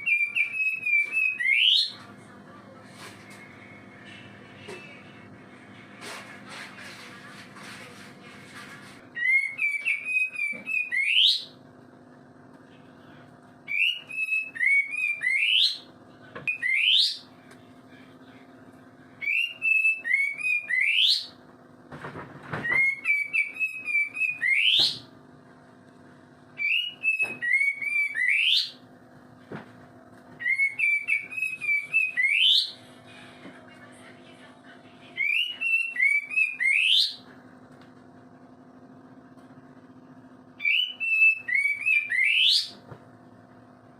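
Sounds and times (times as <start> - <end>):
songbird warbling and whistling: 0.0 - 2.0, 9.2 - 11.6, 13.7 - 15.9, 16.5 - 17.3, 19.2 - 21.4, 22.7 - 25.1, 26.6 - 28.8, 30.4 - 32.8, 35.2 - 37.2, 40.6 - 42.8
steady low hum: 0.0 - 43.9.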